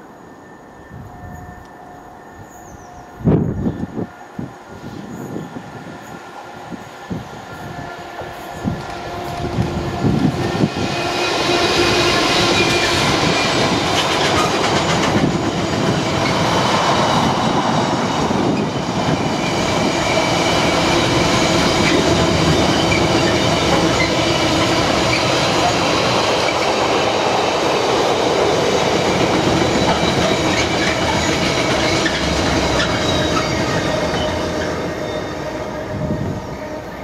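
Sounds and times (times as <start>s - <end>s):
diesel locomotive passing: 0.0s - 37.0s
wheel squeal on rails: 7.6s - 27.4s, 28.6s - 37.0s.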